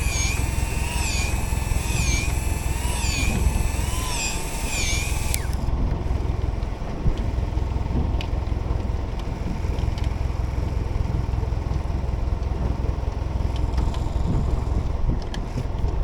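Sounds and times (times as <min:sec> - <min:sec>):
boat engine idling: 0:00.0 - 0:15.1
faint clicks: 0:00.1 - 0:05.6.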